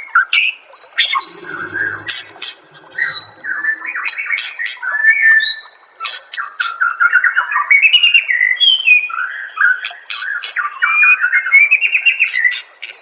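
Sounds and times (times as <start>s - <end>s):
bird singing whistled song: 6.9s - 12.7s.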